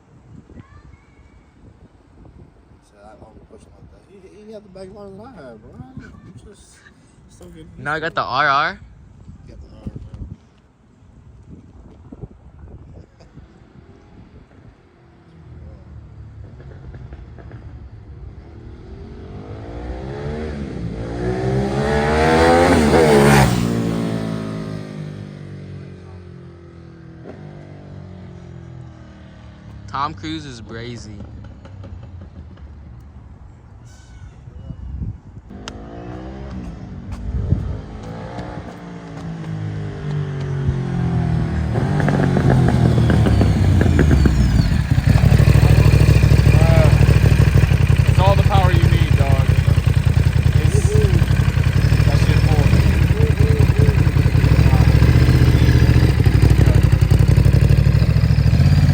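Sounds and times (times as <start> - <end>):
motorcycle accelerating: 15.4 - 33.2, 35.5 - 58.9.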